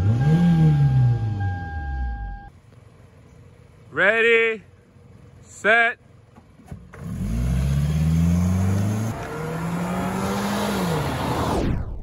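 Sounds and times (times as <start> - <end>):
car engines accelerating hard: 6.9 - 11.9.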